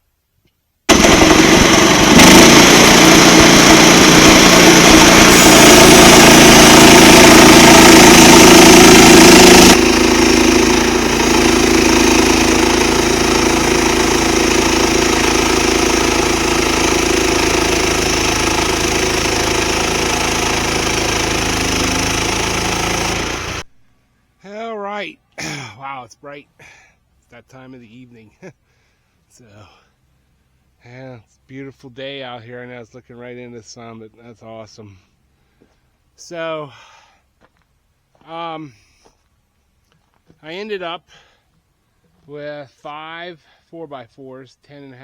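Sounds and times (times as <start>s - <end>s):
sawmill engine cutting log: 0.9s - 23.6s.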